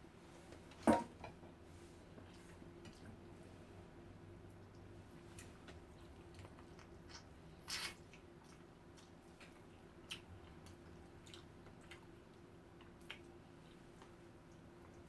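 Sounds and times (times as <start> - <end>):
person chewing: 5.4 - 13.9.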